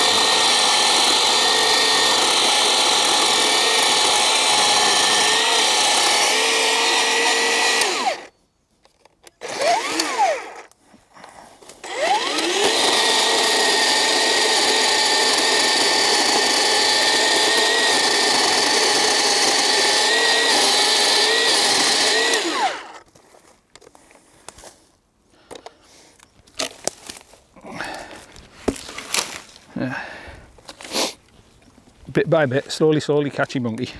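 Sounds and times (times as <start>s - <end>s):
chain cutting into log: 0.0s - 8.3s, 11.8s - 23.0s
electric chainsaw whining: 0.0s - 8.3s, 9.3s - 10.7s, 11.8s - 23.0s.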